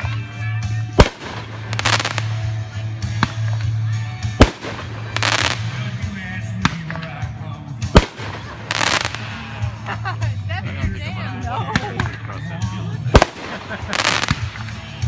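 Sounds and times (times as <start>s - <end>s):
firework shells booming: 1.0s - 2.5s, 4.4s - 5.9s, 8.0s - 9.5s, 13.1s - 14.9s
firework bangs: 1.0s - 3.8s, 4.4s - 6.0s, 7.9s - 9.6s, 13.1s - 14.9s
firework crackling: 1.0s - 3.8s, 4.4s - 6.0s, 8.0s - 9.6s, 13.1s - 14.9s.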